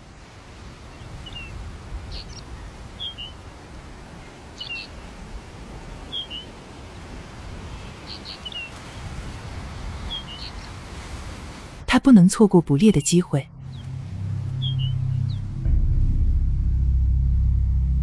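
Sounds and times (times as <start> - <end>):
low wind rumble: 0.0 - 11.9, 13.0 - 18.0
bird chirping: 0.9 - 6.6, 7.7 - 8.8, 10.0 - 10.8, 13.0 - 15.6.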